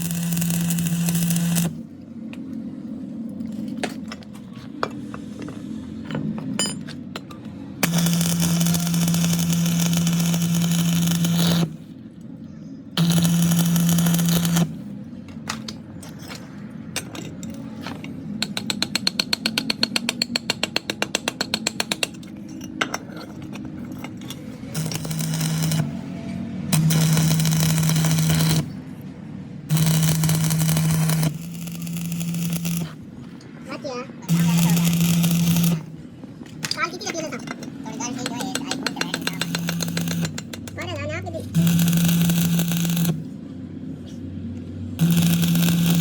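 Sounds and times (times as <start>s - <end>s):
power tool humming: 0.0s - 1.8s, 7.8s - 11.8s, 13.0s - 14.8s, 24.7s - 26.0s, 26.7s - 28.8s, 29.7s - 33.0s, 34.3s - 35.9s, 38.5s - 40.6s, 41.5s - 43.3s, 45.0s - 46.0s.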